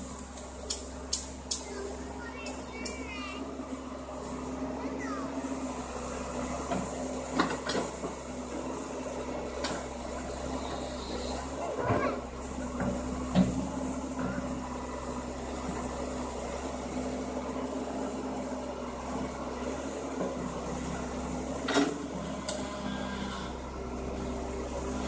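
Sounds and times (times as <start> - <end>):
excavator humming: 0.0 - 25.0.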